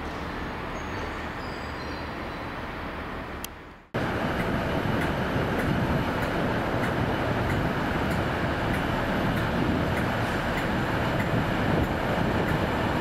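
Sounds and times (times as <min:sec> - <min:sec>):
train wheels rumbling: 0:04.0 - 0:13.0.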